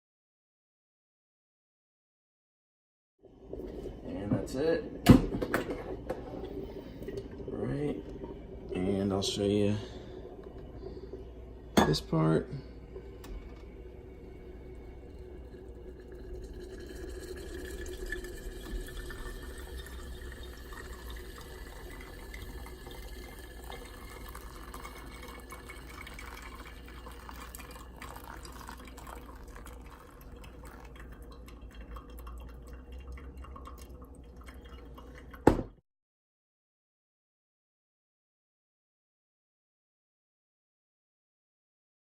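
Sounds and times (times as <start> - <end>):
water pouring into coffee dripper: 12.6 - 35.4.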